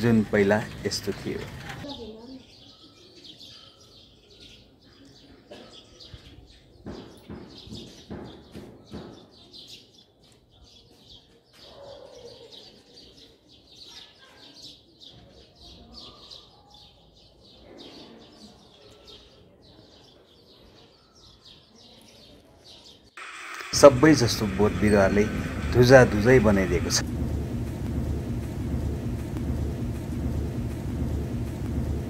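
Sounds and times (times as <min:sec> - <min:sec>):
small birds chirping: 0:00.0 - 0:27.0
muffled background rumble: 0:23.8 - 0:32.0.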